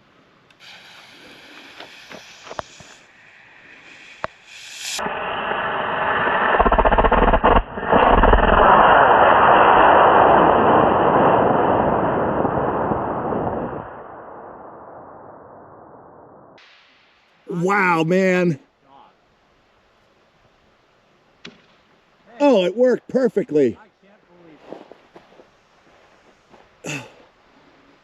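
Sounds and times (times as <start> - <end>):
fuse sputtering and hissing: 0.5 - 9.4
rocket motor roaring: 3.8 - 13.3.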